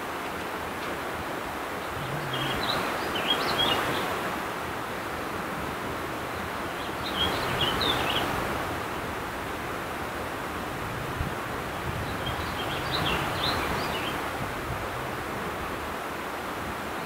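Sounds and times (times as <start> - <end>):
songbird warbling: 1.8 - 4.1.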